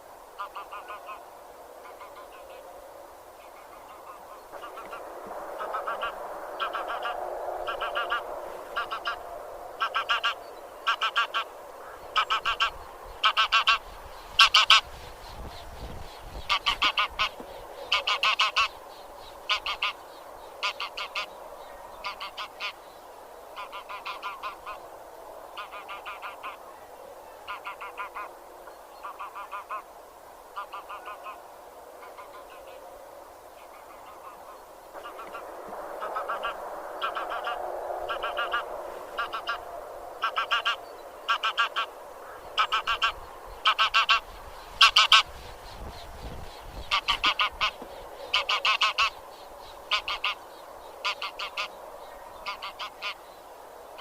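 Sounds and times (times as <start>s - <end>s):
geese honking: 0.4s - 1.2s, 3.7s - 14.9s, 16.5s - 18.8s, 19.5s - 20.0s, 20.6s - 21.4s, 22.0s - 22.8s, 23.6s - 24.8s, 25.6s - 26.6s, 27.5s - 28.3s, 29.0s - 29.9s, 36.0s - 45.3s, 46.8s - 49.2s, 49.9s - 50.4s, 51.0s - 51.8s, 52.4s - 53.2s
distant geese calling: 0.4s - 2.7s, 3.4s - 24.9s, 25.5s - 29.9s, 30.5s - 32.8s, 33.6s - 53.4s.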